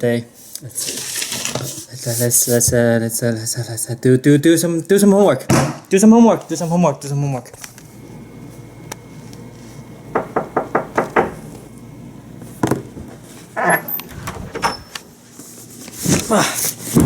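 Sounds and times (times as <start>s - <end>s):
knocking: 10.1s - 11.6s.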